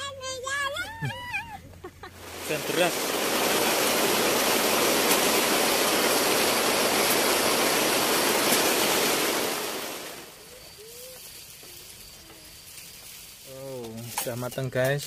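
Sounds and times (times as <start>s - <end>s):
heavy rain pouring: 2.1s - 11.1s.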